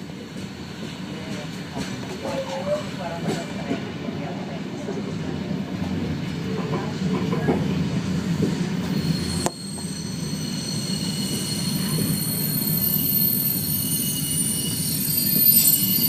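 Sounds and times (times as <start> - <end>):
train rumbling on rails: 0.0 - 16.0
train wheels squealing: 8.5 - 16.0.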